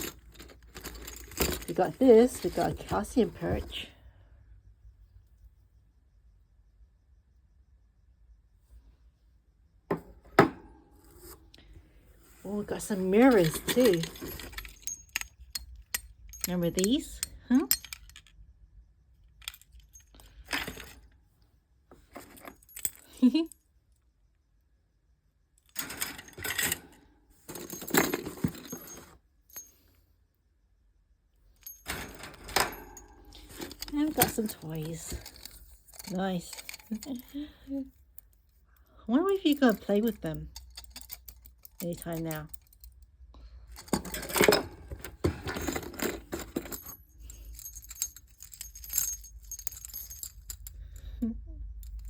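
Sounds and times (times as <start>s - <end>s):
bird toys jangling and clinking: 0.0s - 3.9s, 12.4s - 18.3s, 25.8s - 29.8s, 31.6s - 37.8s, 39.2s - 43.0s, 45.3s - 52.0s
small metal bells jingling: 0.0s - 3.9s, 12.4s - 18.3s, 22.3s - 23.6s, 27.5s - 29.9s, 31.6s - 37.9s, 39.1s - 43.0s, 45.4s - 52.0s.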